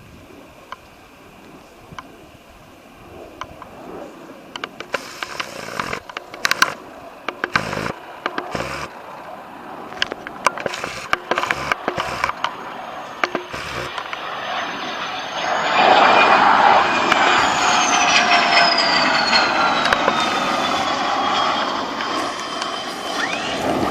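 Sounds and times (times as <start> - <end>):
high whine falling in pitch: 0.0 - 23.9
jet engine roar: 0.0 - 23.9
sharp clicks and crackles: 4.5 - 9.2, 9.9 - 12.6, 13.2 - 14.2.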